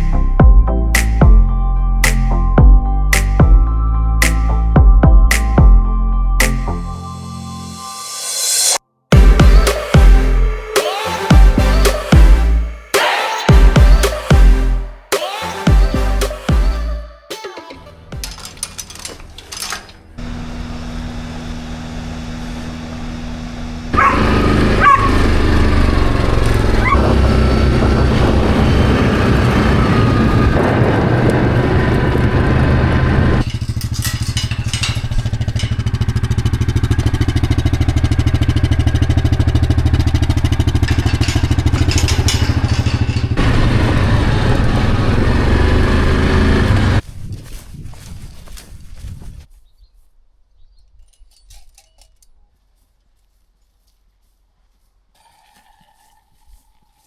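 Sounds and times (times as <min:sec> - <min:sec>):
vehicle engine running: 0:20.2 - 0:47.0.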